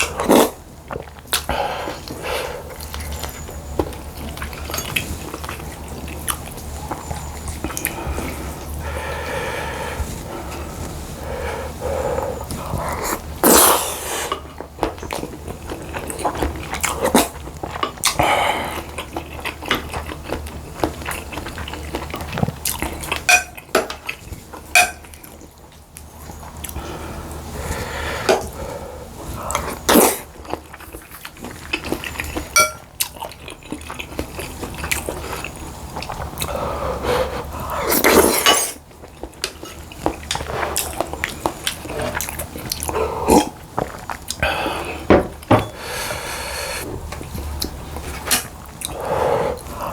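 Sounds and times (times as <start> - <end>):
chewing: 0.0 - 49.9
spoon clinking against ceramic bowl: 32.6 - 32.9
slurping: 33.2 - 45.1.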